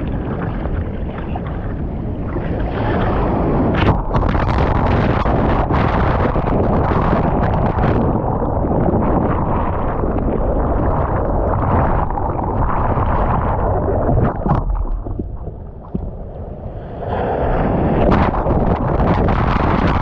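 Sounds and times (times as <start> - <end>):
ocean surf: 0.0 - 20.0
wind buffeting microphone: 0.0 - 20.0.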